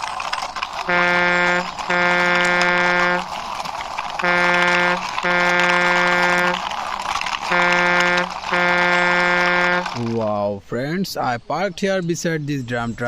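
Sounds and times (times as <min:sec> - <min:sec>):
vehicle horn honking: 0:00.9 - 0:03.3, 0:04.2 - 0:06.7, 0:07.4 - 0:10.1.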